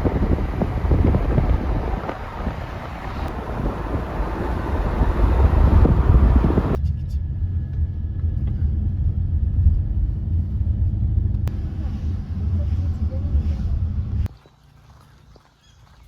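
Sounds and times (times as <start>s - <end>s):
low road rumble: 0.0s - 6.8s, 7.4s - 14.4s
wind rushing over microphone: 0.0s - 6.8s.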